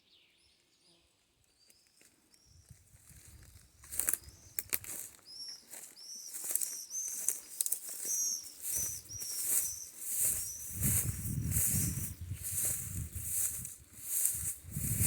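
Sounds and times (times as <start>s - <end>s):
small bird chirping: 0.0s - 14.5s
light rustling hiss: 6.4s - 15.0s.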